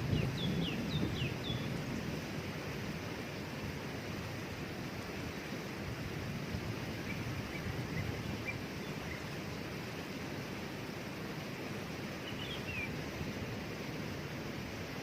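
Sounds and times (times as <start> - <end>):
birds chirping: 0.0 - 2.2, 6.9 - 9.7, 12.2 - 13.0
waterfall rushing: 0.0 - 15.0.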